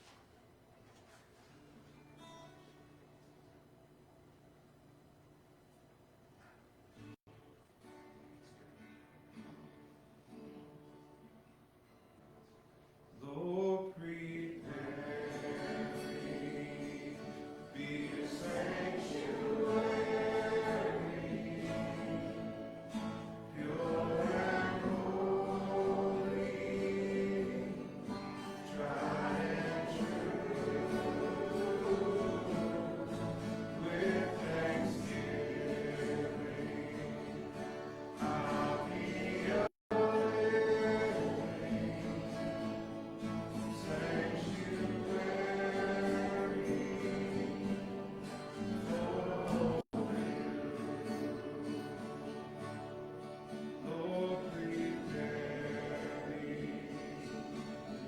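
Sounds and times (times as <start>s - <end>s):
congregation singing: 13.2s - 58.0s.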